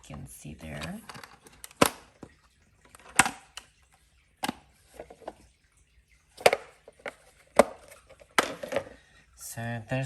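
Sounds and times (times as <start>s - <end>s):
plastic knocks and clicks: 0.0s - 3.7s, 6.4s - 9.0s.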